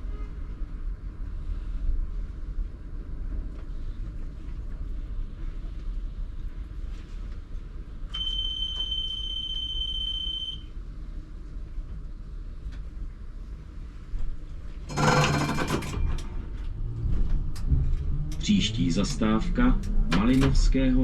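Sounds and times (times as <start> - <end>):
tram rumbling: 0.0 - 8.2, 10.8 - 21.0.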